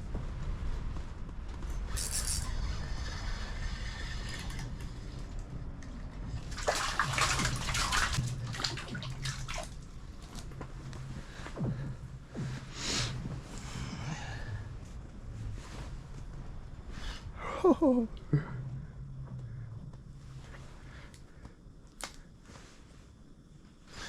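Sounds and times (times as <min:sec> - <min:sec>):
low steady hum: 0:00.0 - 0:24.0
water sloshing and splashing: 0:04.2 - 0:12.6.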